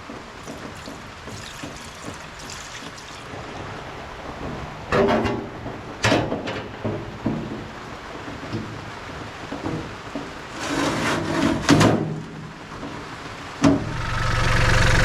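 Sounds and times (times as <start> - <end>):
liquid trickling into radiator: 0.3 - 3.7.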